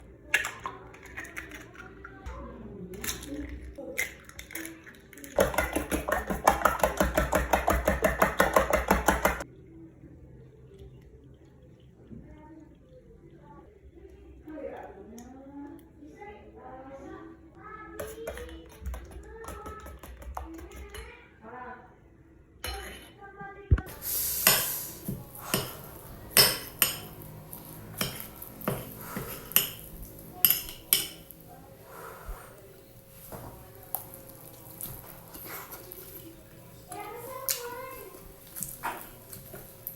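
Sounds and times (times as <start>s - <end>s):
kitchen utensil strokes: 23.8s - 39.9s.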